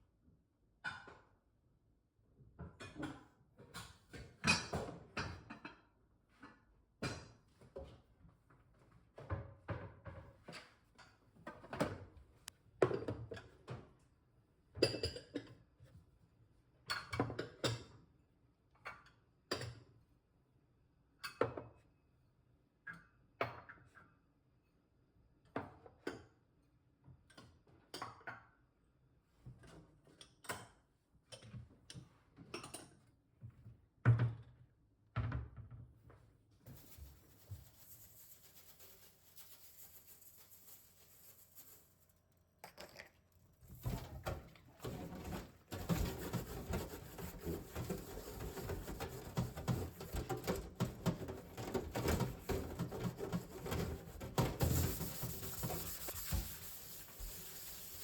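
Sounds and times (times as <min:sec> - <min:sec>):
steady hiss: 0:54.6 - 0:58.0.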